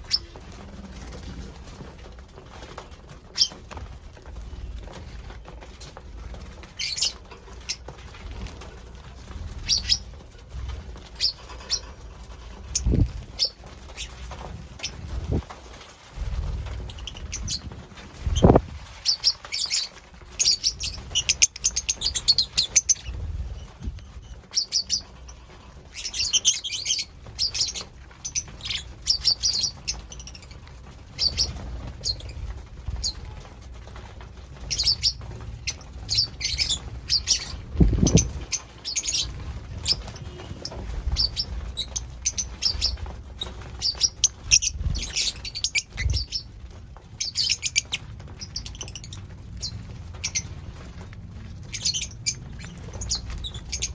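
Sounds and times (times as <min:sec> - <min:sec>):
lovebirds chirping: 0:00.0 - 0:00.4, 0:06.8 - 0:07.9, 0:09.6 - 0:10.2, 0:11.1 - 0:11.9, 0:16.9 - 0:23.8, 0:24.5 - 0:30.6, 0:31.2 - 0:32.4, 0:34.6 - 0:46.5, 0:51.6 - 0:53.9.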